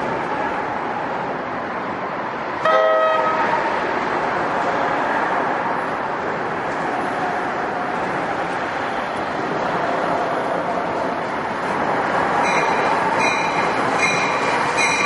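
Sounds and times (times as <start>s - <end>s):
train running: 0.0s - 15.0s
train horn toot: 2.6s - 3.6s.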